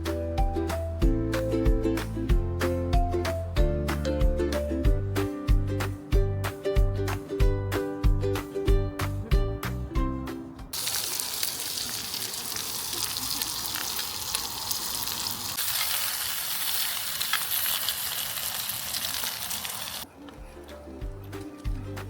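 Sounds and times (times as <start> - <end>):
background music: 0.0 - 10.8, 20.1 - 22.0
food sizzling in a pan: 10.8 - 20.1.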